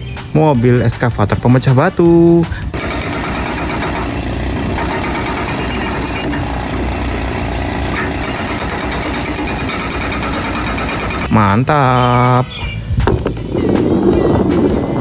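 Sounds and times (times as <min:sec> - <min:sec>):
hydraulic breaker hammering rock: 0:02.7 - 0:11.4.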